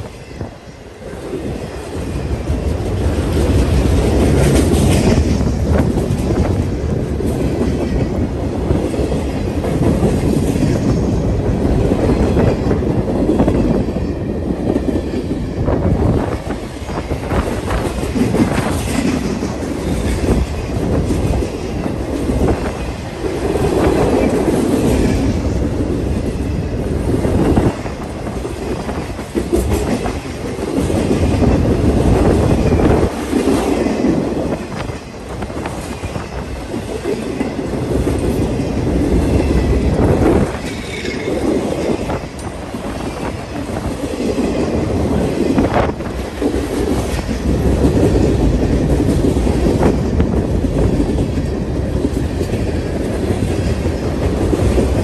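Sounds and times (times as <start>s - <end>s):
freight train rumbling past: 0.0s - 55.0s
wheels clicking over rail joints: 16.1s - 55.0s.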